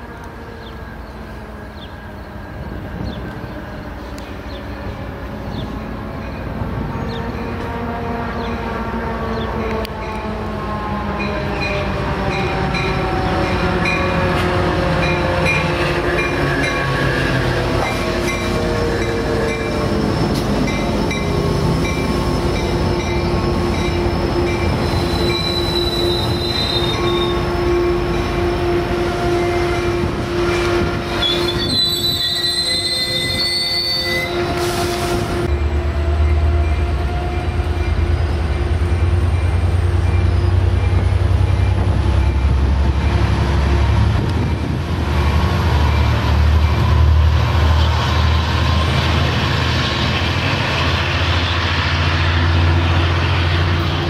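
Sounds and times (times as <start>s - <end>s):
diesel locomotive engine passing: 0.0s - 54.0s
train wheels and brakes squealing: 11.2s - 28.3s, 29.4s - 43.2s.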